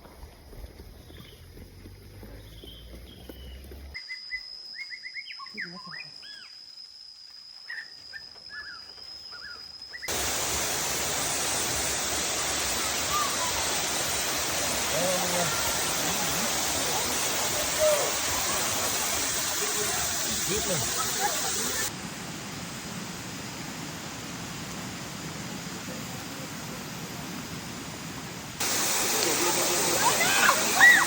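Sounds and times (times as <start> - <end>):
birds chirping: 0.9 - 4.4
high-pitched insect whine: 3.3 - 31.0
rushing water: 10.1 - 26.6, 27.6 - 31.0.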